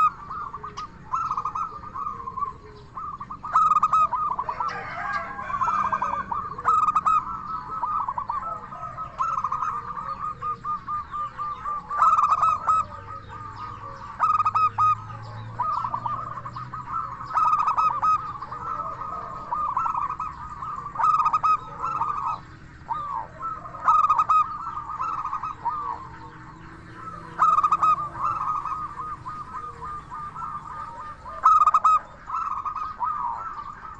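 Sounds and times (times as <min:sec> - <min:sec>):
dove cooing: 0:00.0 - 0:33.9.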